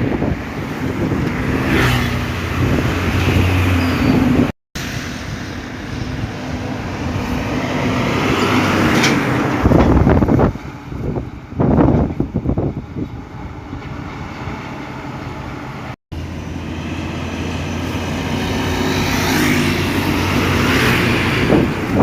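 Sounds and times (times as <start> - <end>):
road and tyre noise: 0.0 - 22.0
truck engine hum: 0.2 - 22.0.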